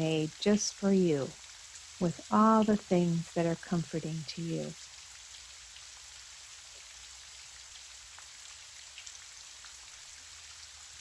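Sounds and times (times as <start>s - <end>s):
raindrops ticking: 0.0s - 5.9s
gentle rain hiss: 0.0s - 11.0s.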